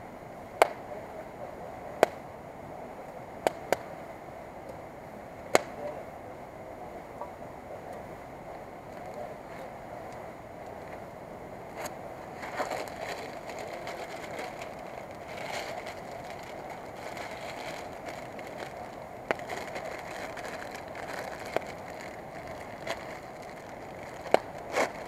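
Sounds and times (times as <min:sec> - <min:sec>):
campfire crackling: 0:00.3 - 0:25.0
sharp pops of fire: 0:00.6 - 0:00.9, 0:02.0 - 0:02.2, 0:03.4 - 0:03.9, 0:05.5 - 0:05.8, 0:24.2 - 0:24.9.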